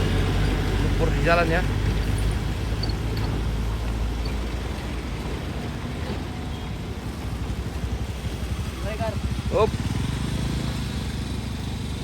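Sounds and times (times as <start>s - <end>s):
heavy engine rumbling: 0.0s - 8.2s.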